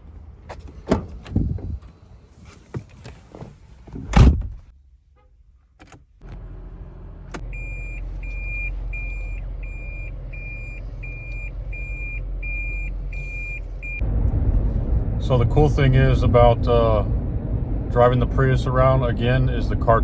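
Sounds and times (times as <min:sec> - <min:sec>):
car door shutting: 0:02.7 - 0:04.6
car engine humming: 0:06.2 - 0:20.0
reverse warning beeps: 0:07.5 - 0:14.0.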